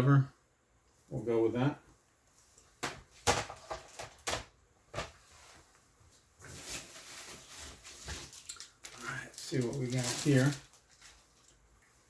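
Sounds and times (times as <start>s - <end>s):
rustling: 4.9s - 12.0s.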